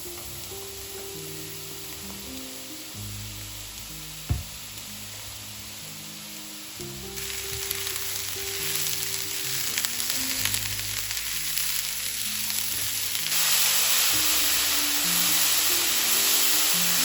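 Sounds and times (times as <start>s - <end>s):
food sizzling in a frying pan: 0.0s - 17.0s
soft background music: 0.0s - 17.0s.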